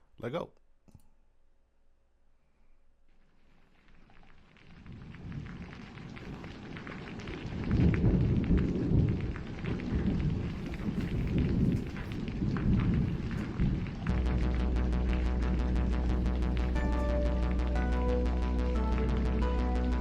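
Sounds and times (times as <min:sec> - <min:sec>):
rain: 0:03.2 - 0:20.0
rolling thunder: 0:04.6 - 0:20.0
steady synth tone: 0:14.1 - 0:20.0.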